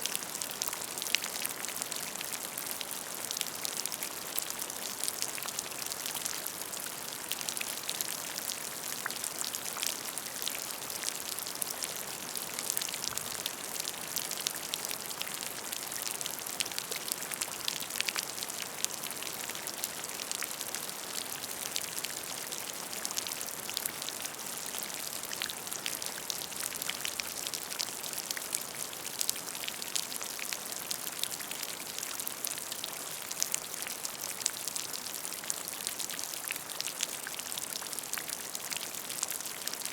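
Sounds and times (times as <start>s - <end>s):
rain pattering on a puddle: 0.0s - 39.9s.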